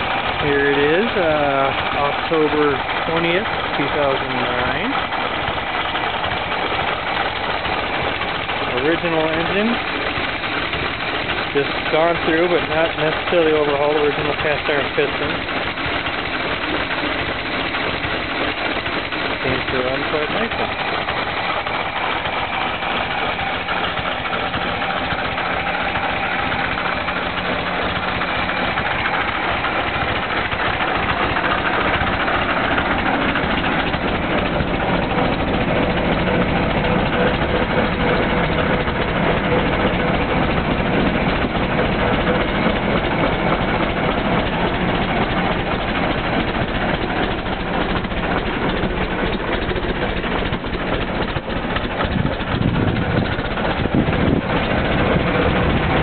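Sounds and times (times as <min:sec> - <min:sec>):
truck engine running: 0:00.0 - 0:56.0.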